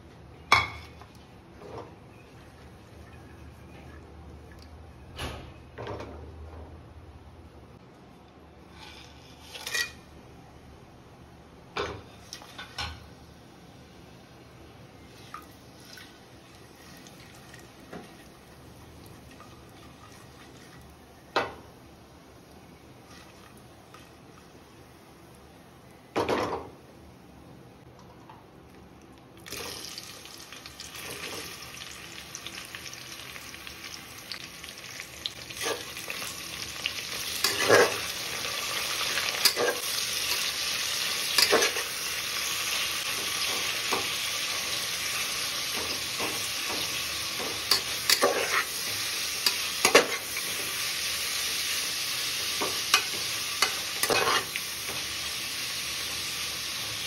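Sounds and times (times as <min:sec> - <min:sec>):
food sizzling in oil: 0:29.4 - 0:57.0.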